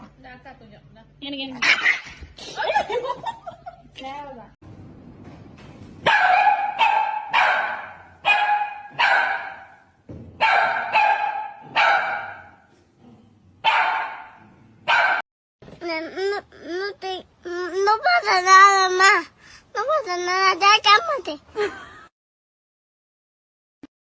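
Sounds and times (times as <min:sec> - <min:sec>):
dog barking: 0:06.0 - 0:09.8, 0:10.4 - 0:12.7, 0:13.6 - 0:15.2.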